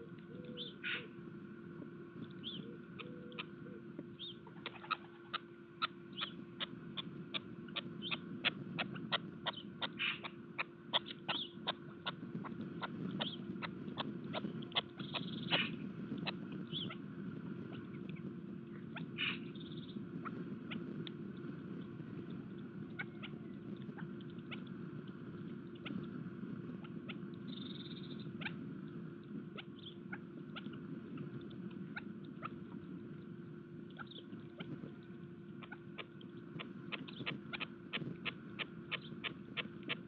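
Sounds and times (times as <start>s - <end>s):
low hum: 0.0s - 40.0s
birds pecking at feeder: 0.1s - 40.0s
bird chirps: 0.3s - 1.1s, 2.4s - 8.2s, 8.8s - 12.2s, 12.8s - 17.0s, 18.8s - 20.0s, 26.9s - 28.6s, 29.6s - 30.8s, 33.9s - 34.7s, 38.6s - 40.0s.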